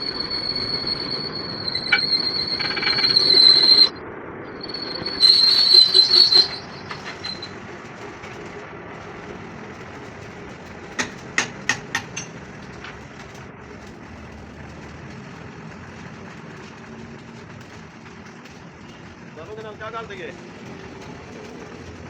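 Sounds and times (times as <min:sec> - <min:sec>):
power tool squealing on steel: 0:00.0 - 0:08.5, 0:16.0 - 0:22.0.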